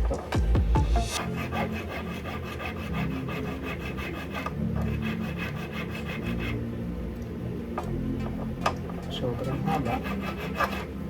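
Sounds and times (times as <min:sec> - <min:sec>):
hand file sawing metal: 0:01.2 - 0:06.6, 0:09.0 - 0:11.0.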